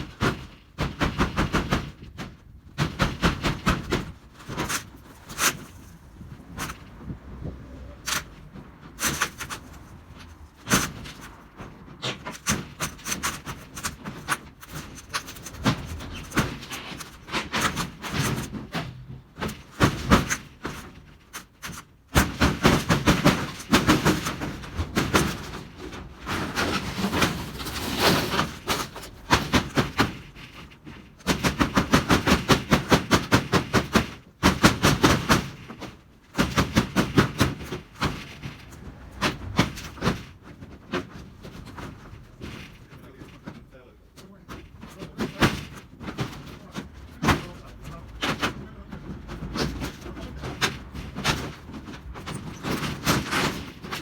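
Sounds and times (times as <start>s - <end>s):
metallic knocks and clatter: 0.0s - 54.0s.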